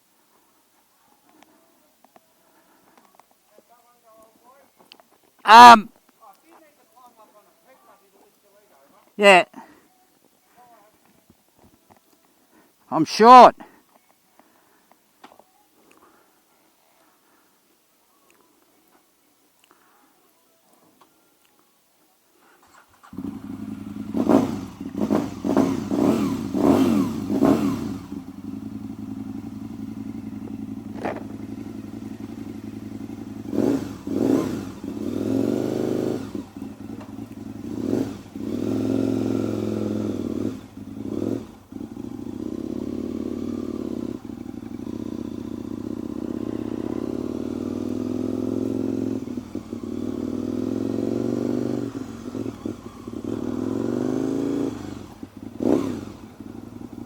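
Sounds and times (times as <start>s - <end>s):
motorcycle engine revving: 22.6s - 57.0s.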